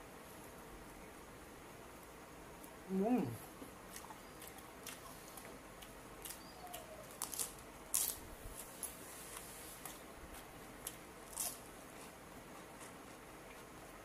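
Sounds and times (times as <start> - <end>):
lettuce crunching: 3.9 - 13.8.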